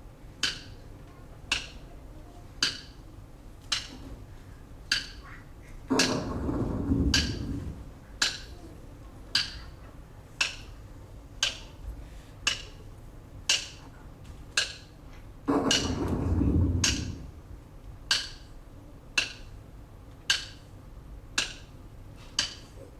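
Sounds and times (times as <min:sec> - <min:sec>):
low rumble: 0:15.9 - 0:17.7.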